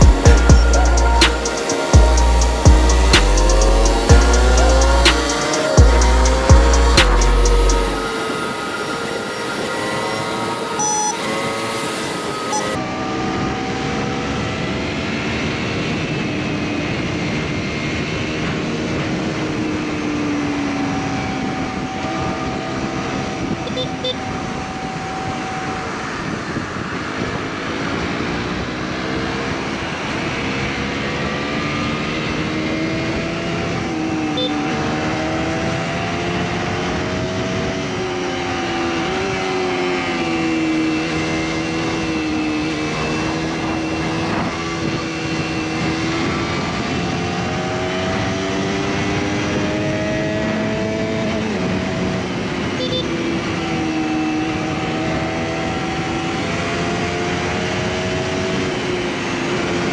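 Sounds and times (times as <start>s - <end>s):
wind noise: 0.0s - 59.9s
motorcycle engine running: 2.0s - 8.0s.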